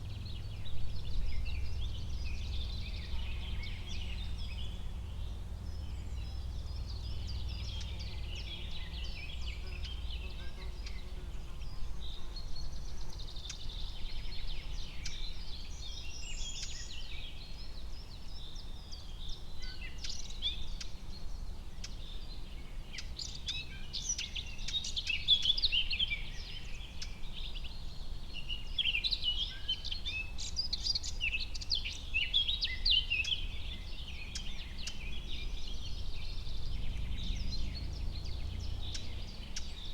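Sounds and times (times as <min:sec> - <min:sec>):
small birds chirping and trilling: 0:00.0 - 0:39.9
steady low rumble: 0:34.8 - 0:39.7.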